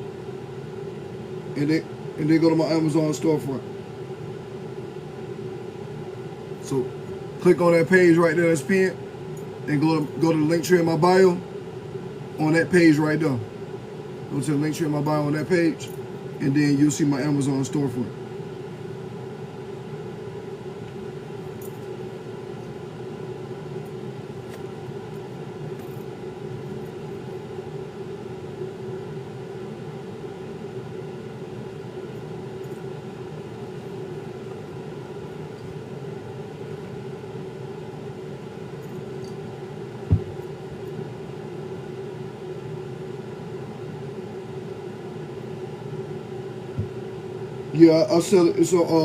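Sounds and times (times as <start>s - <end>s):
machine humming: 0.0s - 49.0s
single knock: 40.1s - 40.4s.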